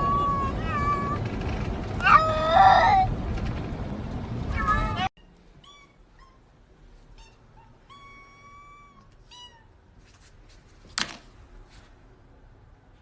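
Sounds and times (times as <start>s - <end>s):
cat meowing: 0.0s - 1.2s, 7.2s - 9.8s.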